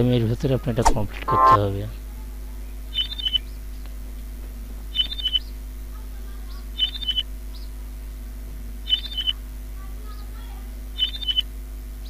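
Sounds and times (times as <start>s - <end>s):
low electrical hum: 0.0s - 12.0s
small bird chirping: 2.5s - 3.9s, 4.9s - 5.7s, 6.3s - 7.8s, 8.8s - 12.0s.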